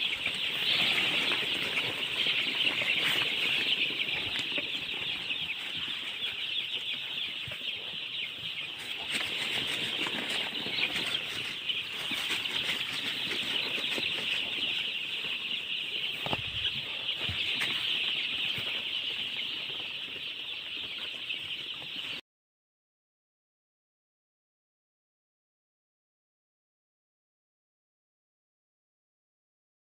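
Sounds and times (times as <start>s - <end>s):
baby chicks peeping: 0.0s - 22.2s.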